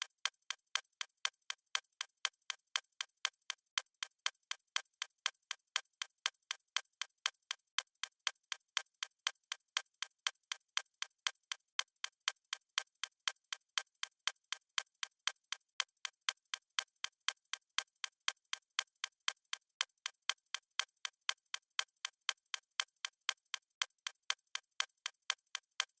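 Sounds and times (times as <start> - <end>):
stopwatch ticking: 0.0 - 26.0.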